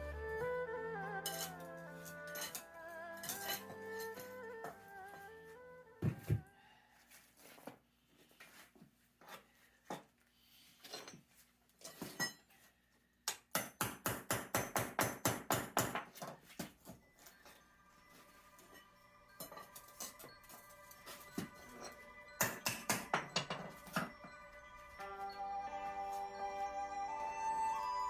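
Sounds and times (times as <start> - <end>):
background music: 0.0 - 6.6, 17.0 - 28.0
hammering on concrete: 13.3 - 16.2, 22.4 - 24.1.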